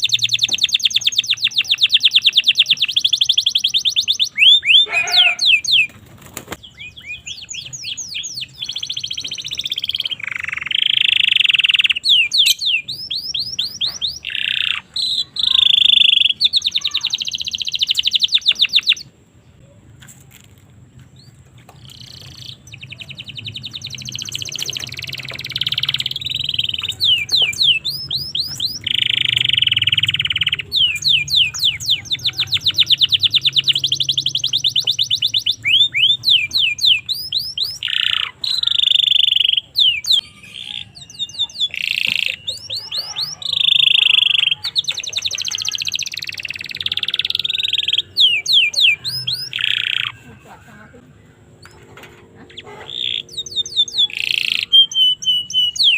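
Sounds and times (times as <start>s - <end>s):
canary singing: 0.0s - 19.8s, 21.0s - 55.9s.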